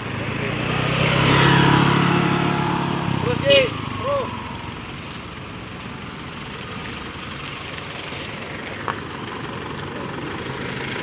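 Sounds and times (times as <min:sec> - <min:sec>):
vehicle engine idling: 0:03.0 - 0:11.0.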